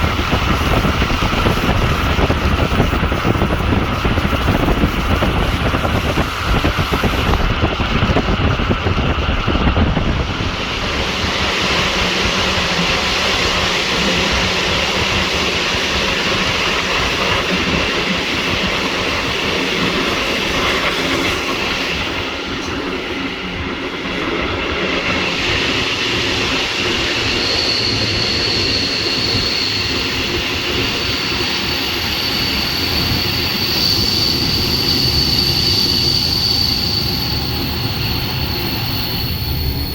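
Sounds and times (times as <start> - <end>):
train rumble and rail noise: 0.0 - 39.9
thin high whine: 26.9 - 39.9.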